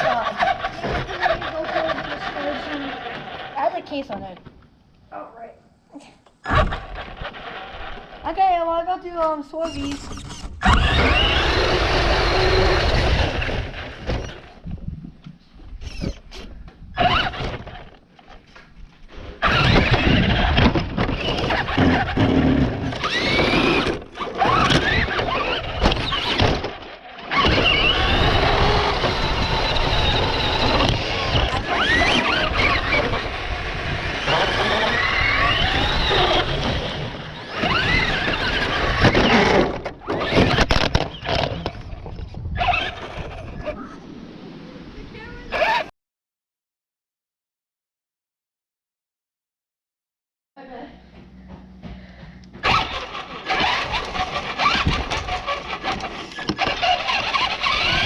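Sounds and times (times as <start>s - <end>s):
toy car motor whining: 0.0s - 3.8s, 9.6s - 14.5s, 15.8s - 16.2s, 17.0s - 17.9s, 19.4s - 41.8s, 42.6s - 43.5s, 52.6s - 58.0s
wheels rumbling on ground: 0.0s - 4.4s, 6.4s - 15.8s, 16.8s - 45.9s, 51.1s - 58.0s.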